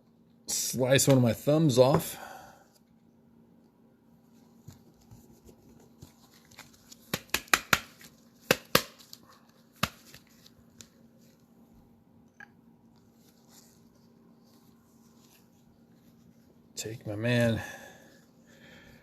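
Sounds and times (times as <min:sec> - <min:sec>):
cards clicking and crinkling: 0:04.7 - 0:11.0
card pack wrapper rustling: 0:05.5 - 0:11.4.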